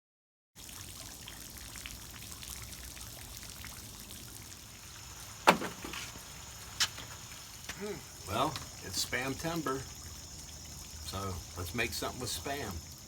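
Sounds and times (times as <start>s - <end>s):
faint steady patter: 5.1s - 13.0s
sharp knock: 5.5s - 6.0s.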